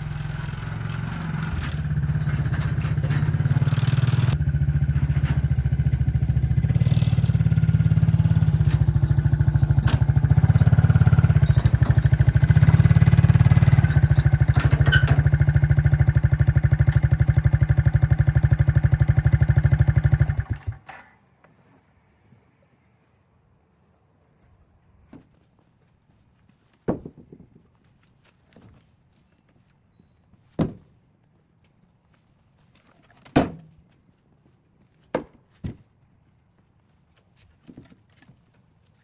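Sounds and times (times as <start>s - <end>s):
engine running: 0.0s - 20.9s.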